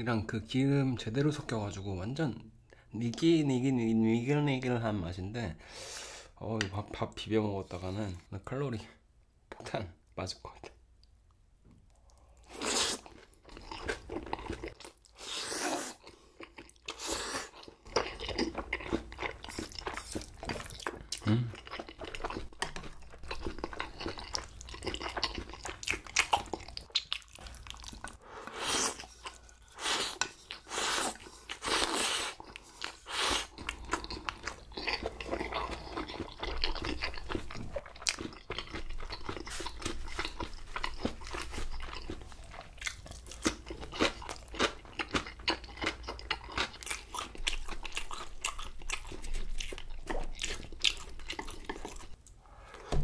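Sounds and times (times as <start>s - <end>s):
crunching and chewing fried food: 10.6s - 52.4s.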